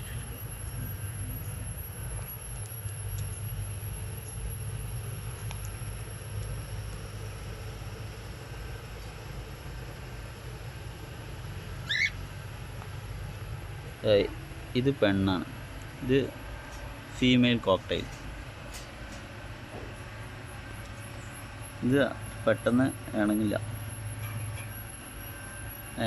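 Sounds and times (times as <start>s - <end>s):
steady low hum: 0.0s - 26.0s
cockatiel chirp: 11.8s - 12.2s.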